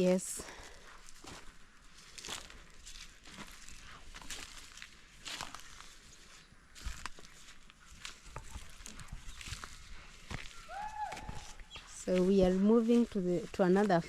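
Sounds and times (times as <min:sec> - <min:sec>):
footsteps on dry ground: 0:00.0 - 0:14.0
rustling vegetation: 0:00.0 - 0:14.0.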